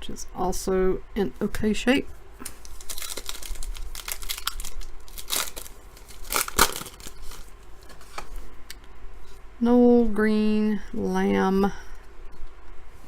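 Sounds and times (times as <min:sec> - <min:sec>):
crinkly wrapper being torn open: 0:02.4 - 0:07.6.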